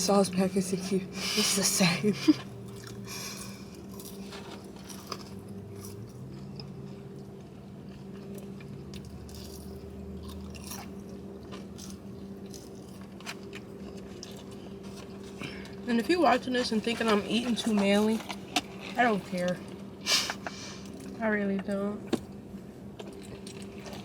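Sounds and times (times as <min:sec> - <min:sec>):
steady low hum: 0:00.0 - 0:24.0
person chewing food: 0:02.3 - 0:15.8, 0:19.6 - 0:21.2, 0:22.9 - 0:24.0
small crunches and clicks: 0:02.7 - 0:15.8, 0:23.0 - 0:24.0.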